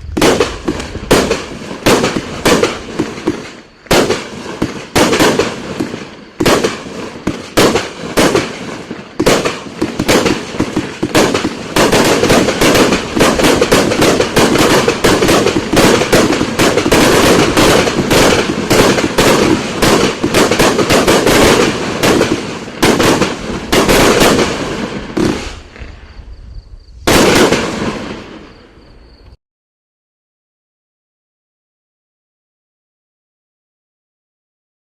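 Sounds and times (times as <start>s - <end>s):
fireworks cake bangs: 0.0s - 25.6s, 27.1s - 28.6s.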